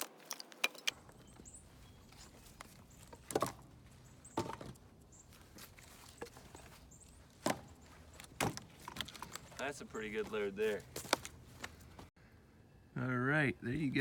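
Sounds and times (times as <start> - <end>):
firewood knocking: 2.7 - 4.9, 7.4 - 11.8.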